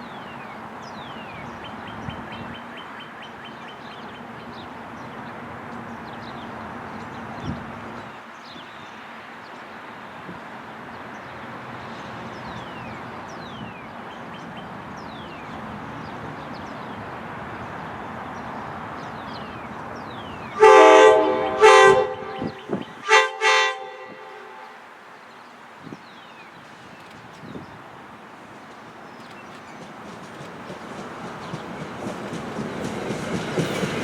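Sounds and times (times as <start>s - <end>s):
locomotive air horn blasts: 20.6s - 24.9s.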